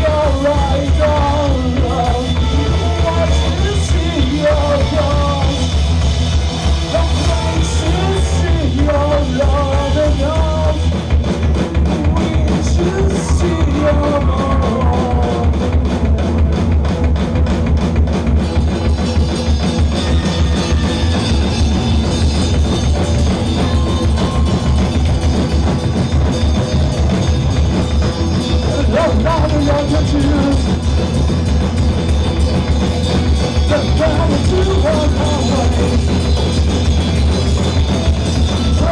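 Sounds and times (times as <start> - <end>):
person singing: 0.0 - 5.8, 6.6 - 10.9, 11.8 - 15.8, 28.6 - 30.8, 33.6 - 36.2
live rock band playing: 0.0 - 38.9.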